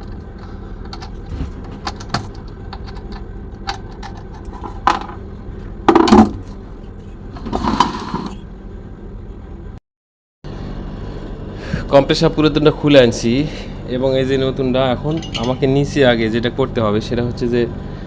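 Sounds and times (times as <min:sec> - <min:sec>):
steady low hum: 0:00.0 - 0:09.8, 0:10.5 - 0:18.0
metal rattling scrape: 0:06.9 - 0:08.4
metal tools clinking and clanking: 0:15.0 - 0:15.8.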